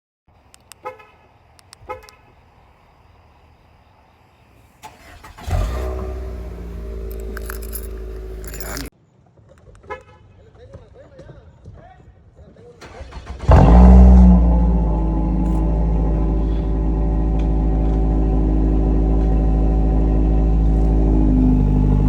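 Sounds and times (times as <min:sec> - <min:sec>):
car lock chirps: 0:04.8 - 0:08.9
loud car engine idling: 0:05.0 - 0:08.9, 0:13.4 - 0:22.0.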